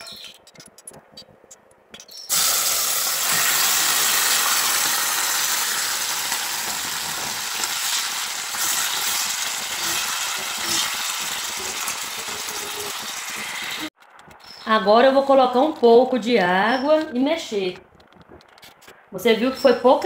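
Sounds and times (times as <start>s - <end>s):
food sizzling in hot oil: 2.3s - 14.0s.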